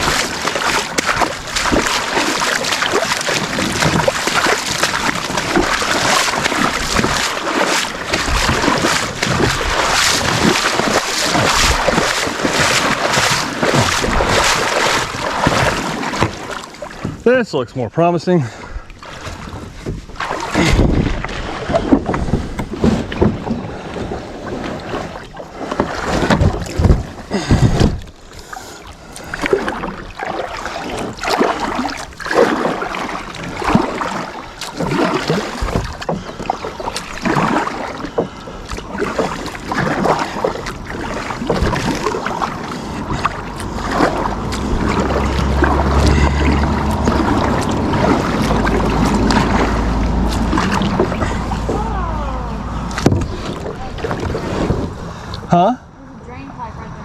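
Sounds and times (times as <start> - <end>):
paddle strokes splashing: 0.0 - 56.5
wind rumble on microphone: 18.8 - 28.3, 39.8 - 57.0.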